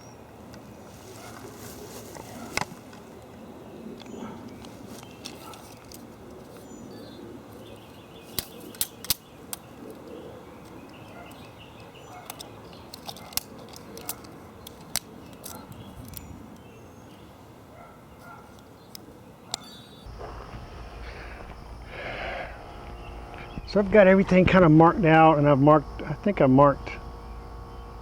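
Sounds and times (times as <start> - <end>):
outdoor background noise: 0.0 - 28.0.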